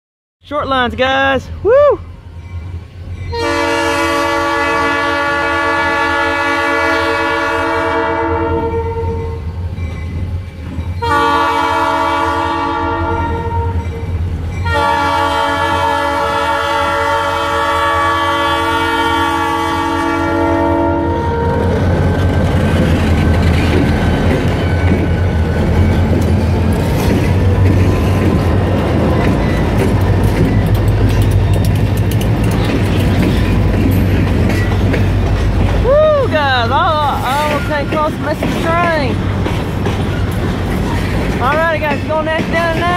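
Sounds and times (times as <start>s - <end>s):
locomotive air horn blasts: 3.3s - 9.4s, 11.0s - 13.8s, 14.6s - 21.8s
diesel engine rumbling: 21.3s - 42.9s
wheels clicking over rail joints: 21.7s - 42.9s.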